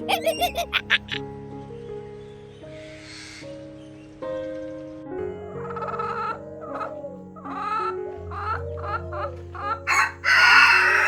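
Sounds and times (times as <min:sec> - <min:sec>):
chickens clucking: 0:00.0 - 0:01.2, 0:05.2 - 0:11.0
background music: 0:00.0 - 0:11.0
rooster crowing: 0:05.2 - 0:11.0.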